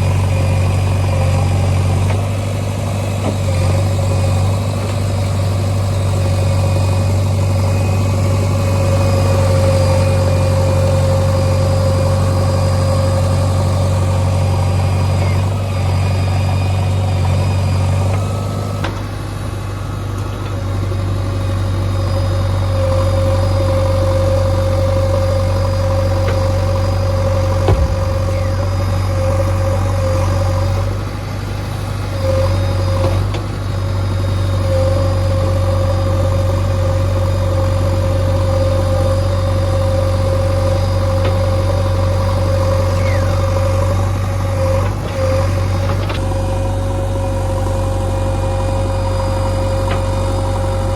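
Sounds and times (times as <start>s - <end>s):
steady whine: 0.0s - 33.1s
diesel engine running: 0.0s - 50.9s.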